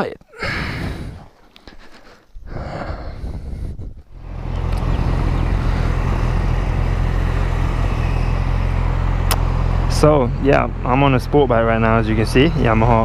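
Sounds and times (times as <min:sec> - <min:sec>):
rushing air: 0:02.4 - 0:09.7
motorcycle engine running: 0:04.1 - 0:13.0.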